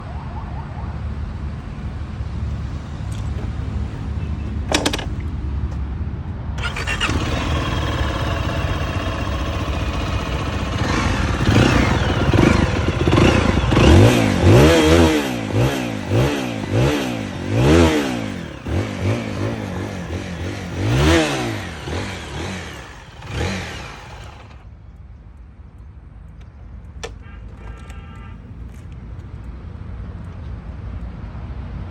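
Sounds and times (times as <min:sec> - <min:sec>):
motorcycle engine revving: 0:06.6 - 0:24.6.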